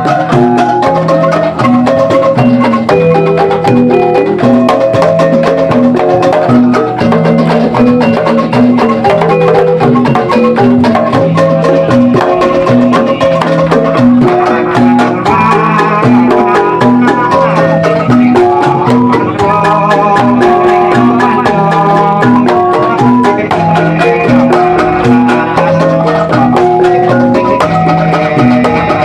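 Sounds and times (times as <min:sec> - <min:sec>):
held lower notes: 0:00.0 - 0:29.0
metallophones struck rapidly: 0:00.0 - 0:29.0
higher ringing notes: 0:22.0 - 0:29.0.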